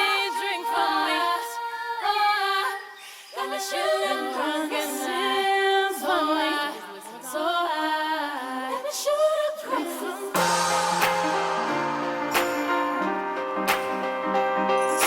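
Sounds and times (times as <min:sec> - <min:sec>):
person singing: 0:09.7 - 0:15.0.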